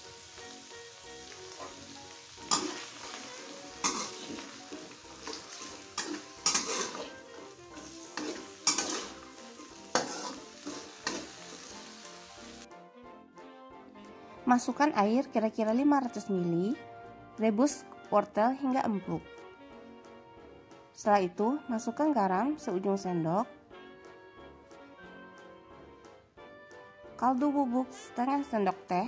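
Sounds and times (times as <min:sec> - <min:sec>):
carrots sizzling in oil: 0:00.0 - 0:12.7
spatula scraping and knocking pan: 0:02.4 - 0:11.7.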